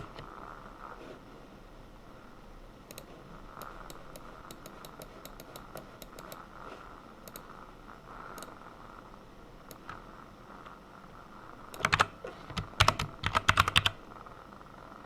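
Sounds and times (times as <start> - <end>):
steady low hiss: 0.0 - 15.0
computer keyboard typing: 2.9 - 6.4, 11.7 - 14.0.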